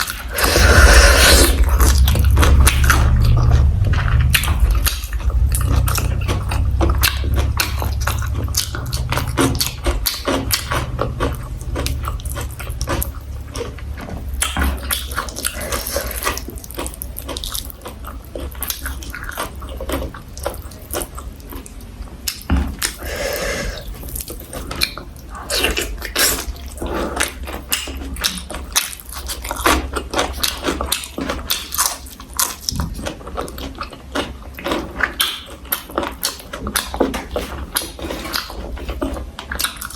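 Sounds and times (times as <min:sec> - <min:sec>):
person chewing and crunching food: 0:00.0 - 0:39.9
low rumble: 0:00.1 - 0:16.7.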